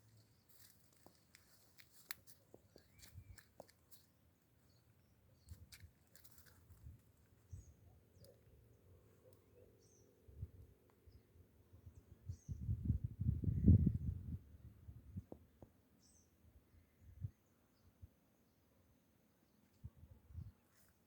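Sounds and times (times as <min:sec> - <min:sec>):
faint bird chirps: 0:02.6 - 0:03.6, 0:07.3 - 0:13.0.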